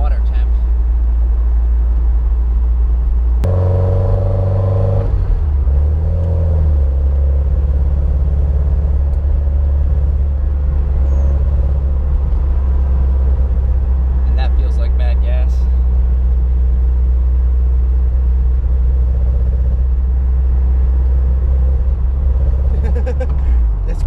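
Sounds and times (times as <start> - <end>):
car engine idling rough: 6.8 - 24.0.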